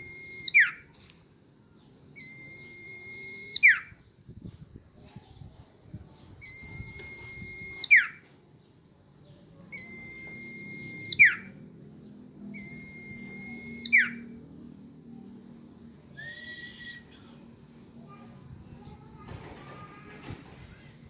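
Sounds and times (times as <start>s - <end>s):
bird whistling long notes: 0.0s - 0.8s, 2.2s - 4.0s, 6.4s - 8.2s, 9.7s - 11.6s, 12.5s - 14.4s, 16.1s - 17.4s.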